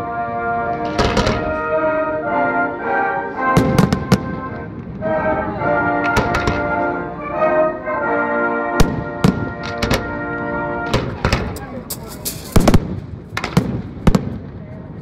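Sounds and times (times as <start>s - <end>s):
music with long held notes: 0.0s - 12.6s
fireworks bangs: 0.8s - 1.7s, 3.6s - 5.2s, 6.0s - 7.0s, 8.8s - 14.7s.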